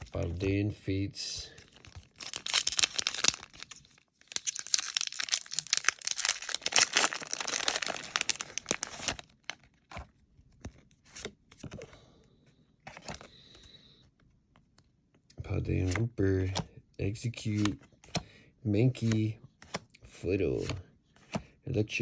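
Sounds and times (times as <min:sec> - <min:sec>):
foil wrapper tearing and crinkling: 0:01.7 - 0:09.6.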